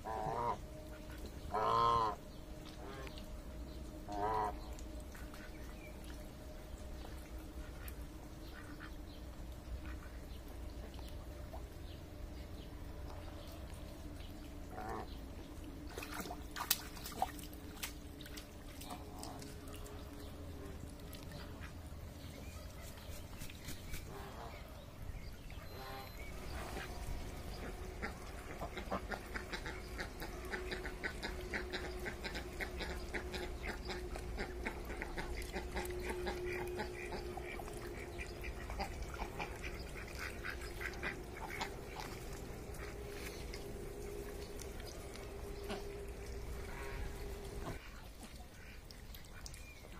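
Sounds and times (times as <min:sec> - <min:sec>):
ducks calling: 0:00.0 - 0:03.3, 0:04.0 - 0:05.8, 0:07.0 - 0:10.5, 0:14.6 - 0:15.2, 0:25.5 - 0:48.0.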